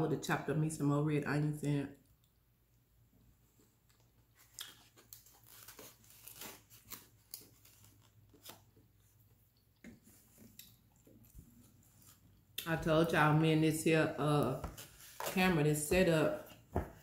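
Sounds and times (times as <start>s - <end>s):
faint chewing: 3.8s - 5.8s, 6.4s - 12.6s.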